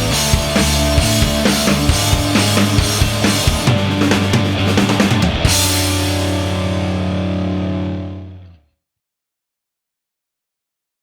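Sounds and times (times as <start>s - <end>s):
rock music with drum beat: 0.0s - 8.2s
final chord ringing: 5.2s - 8.5s.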